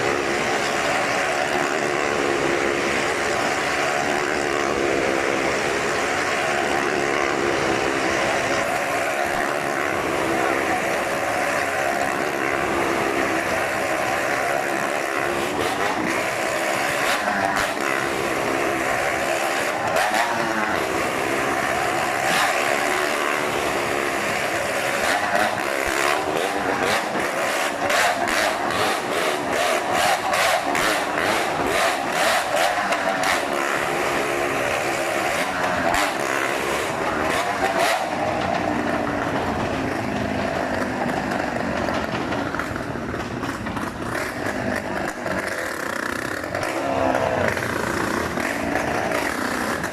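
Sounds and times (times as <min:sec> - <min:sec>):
motorcycle engine rising and falling: 0:00.0 - 0:49.9
sharp knocks and clatter: 0:35.0 - 0:46.8.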